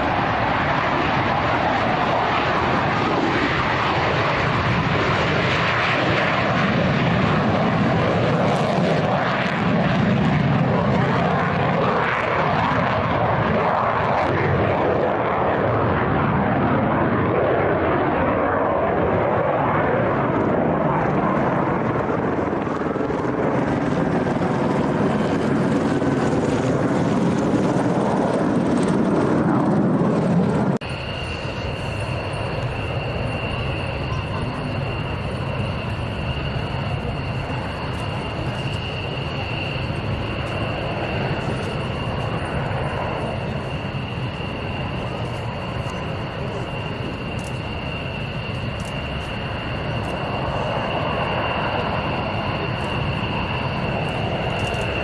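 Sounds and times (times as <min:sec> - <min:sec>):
military aircraft engines roaring: 0:00.0 - 0:55.0.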